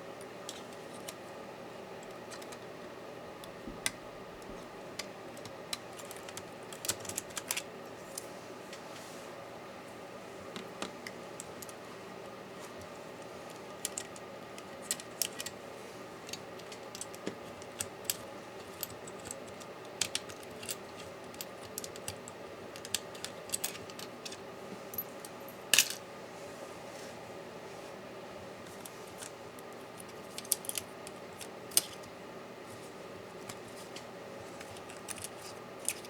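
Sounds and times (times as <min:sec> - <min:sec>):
small tools clicking and tapping: 0:16.3 - 0:24.4, 0:30.0 - 0:32.1, 0:33.4 - 0:36.0.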